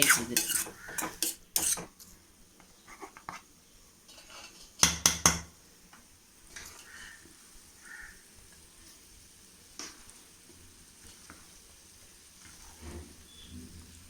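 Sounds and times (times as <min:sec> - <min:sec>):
metal utensils clinking: 0:00.0 - 0:01.9.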